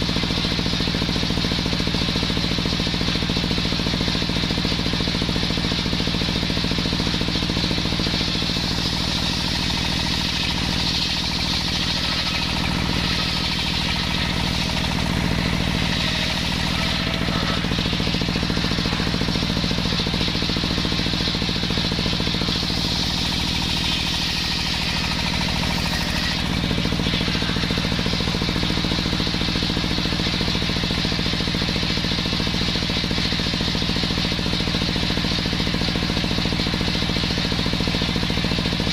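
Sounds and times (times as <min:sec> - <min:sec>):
circular saw cutting wood: 0:05.9 - 0:33.5.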